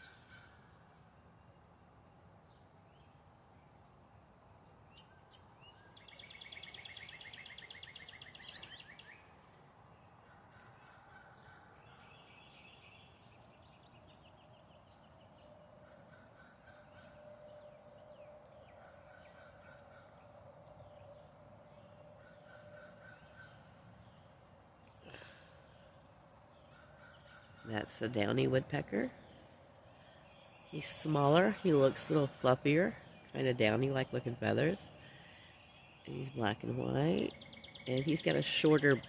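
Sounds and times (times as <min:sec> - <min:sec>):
bird trill: 0:00.0 - 0:00.9, 0:05.0 - 0:09.4
songbirds singing: 0:00.0 - 0:39.0
high bird chirps: 0:05.0 - 0:09.3.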